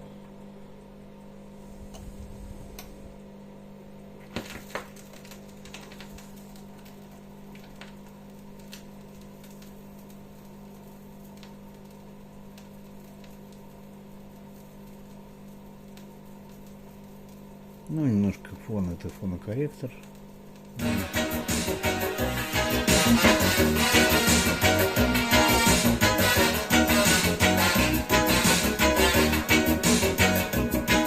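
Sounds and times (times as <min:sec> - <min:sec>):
mains hum: 0:00.0 - 0:31.0.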